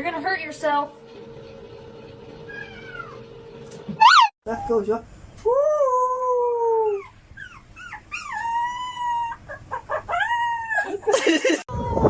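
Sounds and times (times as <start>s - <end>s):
dog howling and yelping: 4.0s - 4.4s, 5.5s - 11.1s.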